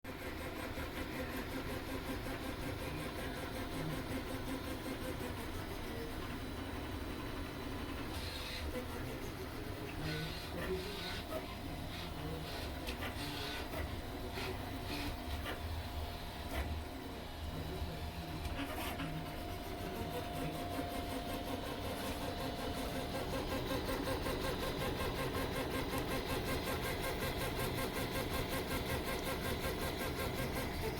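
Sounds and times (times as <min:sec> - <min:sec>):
printer stepper motors whining: 0:00.1 - 0:30.9.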